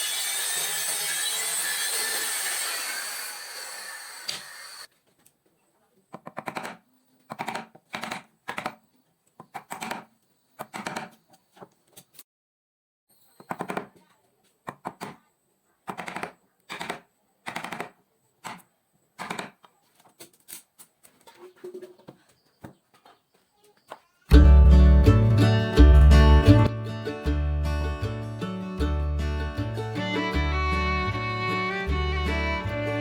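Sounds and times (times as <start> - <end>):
bursts of sharp clicking knocks: 6.1 - 8.8, 9.4 - 11.2, 15.9 - 18.6, 19.2 - 19.6.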